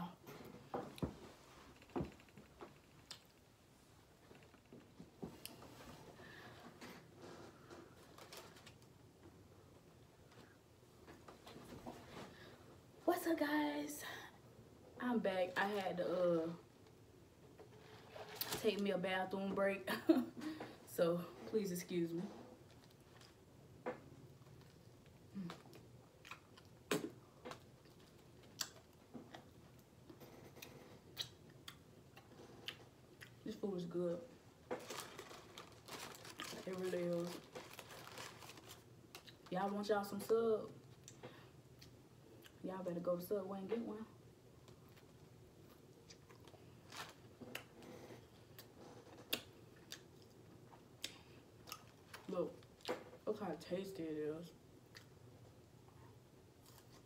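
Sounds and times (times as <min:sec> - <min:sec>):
chewing soft bread: 0:24.3 - 0:33.4, 0:44.6 - 0:52.9, 0:54.8 - 0:57.0
person chewing sandwich: 0:24.4 - 0:33.4.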